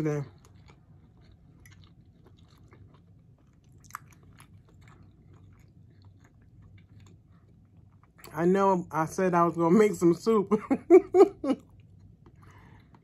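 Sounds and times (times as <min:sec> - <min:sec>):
person chewing food: 0:00.0 - 0:08.4, 0:11.3 - 0:13.0.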